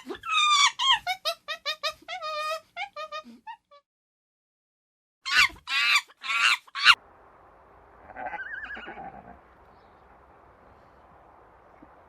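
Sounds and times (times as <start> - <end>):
horse whinnying: 8.1 - 9.4.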